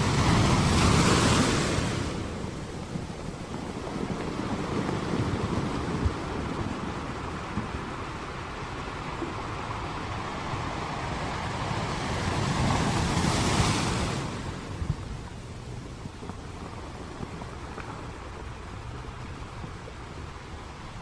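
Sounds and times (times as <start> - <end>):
sea waves breaking: 0.0 - 21.0
wind rumbling on microphone: 0.0 - 21.0.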